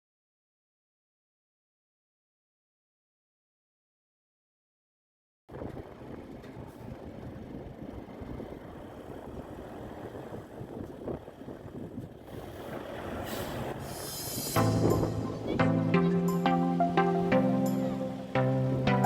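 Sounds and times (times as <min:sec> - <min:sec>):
truck engine idling: 0:05.5 - 0:19.0
hiss: 0:12.3 - 0:14.7.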